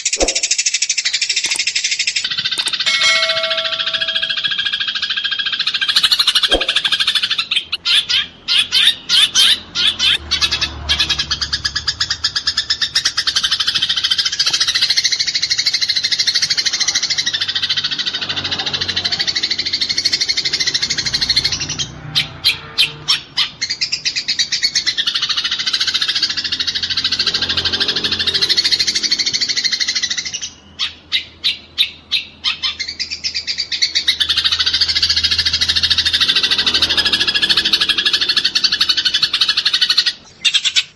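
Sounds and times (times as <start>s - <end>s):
sharp sparrow chirps: 0.0s - 22.3s
sparrows chattering: 0.0s - 40.9s.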